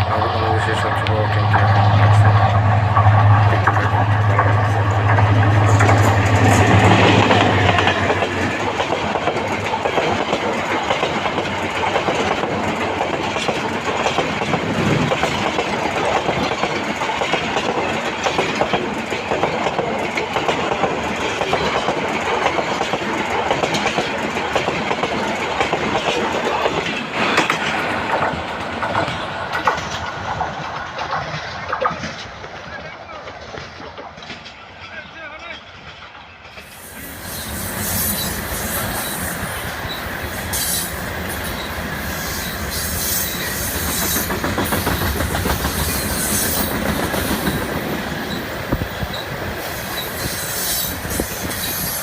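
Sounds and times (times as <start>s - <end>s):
locomotive engine hum: 0.0s - 18.2s
wheels clacking over rail joints: 0.0s - 36.8s, 37.5s - 52.0s
train passing: 0.0s - 52.0s.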